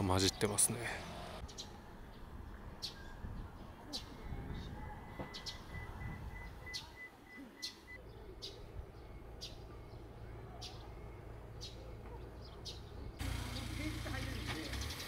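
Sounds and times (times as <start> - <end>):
low wind rumble: 1.8 - 6.7.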